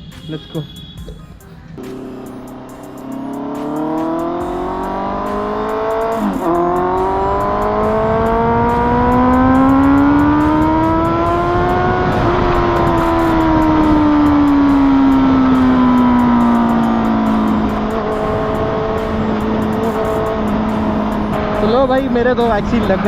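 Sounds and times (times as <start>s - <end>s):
motorcycle accelerating and shifting: 1.8s - 23.0s.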